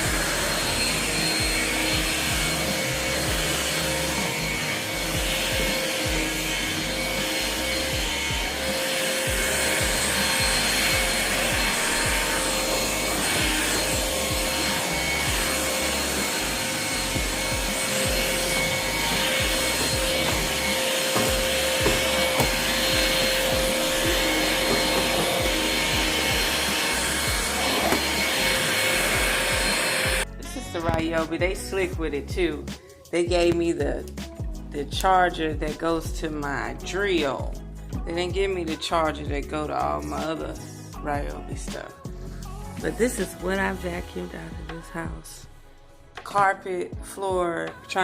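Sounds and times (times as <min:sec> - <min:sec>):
cordless vacuum motor whine: 0:00.0 - 0:30.3
vacuum sucking up gritty dirt: 0:00.0 - 0:31.6.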